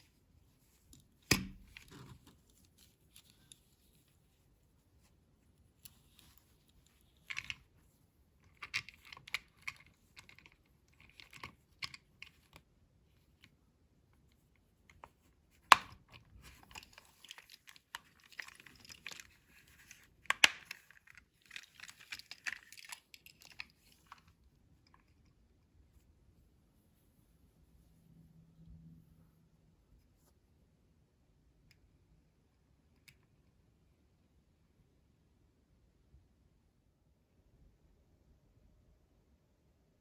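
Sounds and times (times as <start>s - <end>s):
plastic packaging crinkling: 16.5s - 24.1s.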